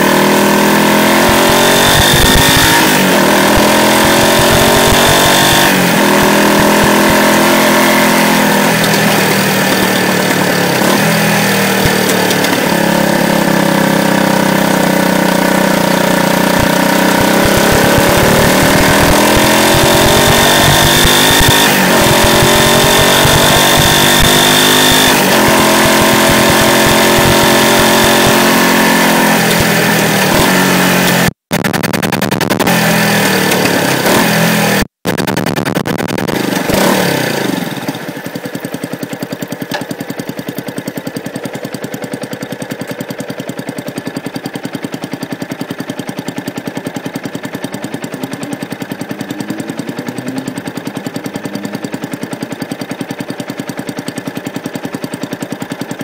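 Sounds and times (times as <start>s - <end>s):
motorcycle engine slowing to idle: 0.0s - 56.0s.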